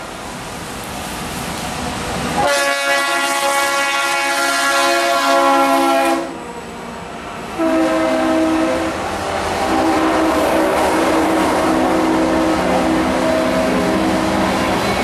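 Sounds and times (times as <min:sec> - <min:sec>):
train horn chord: 0:02.4 - 0:06.4, 0:07.6 - 0:09.0, 0:09.6 - 0:14.2
freight cars rumbling past: 0:06.2 - 0:15.0.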